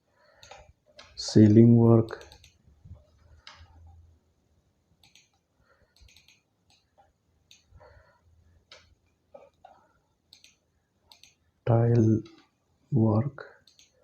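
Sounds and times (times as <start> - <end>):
keyboard typing: 0.4 - 1.2, 2.0 - 2.6, 5.0 - 7.7, 8.7 - 11.4, 13.6 - 14.0.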